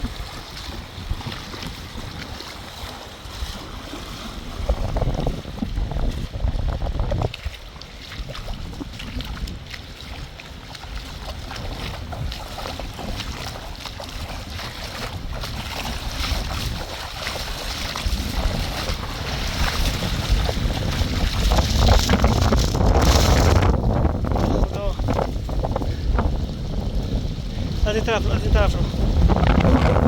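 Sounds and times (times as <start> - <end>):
wind buffeting microphone: 0.0 - 30.0
deep rumble: 17.9 - 30.0.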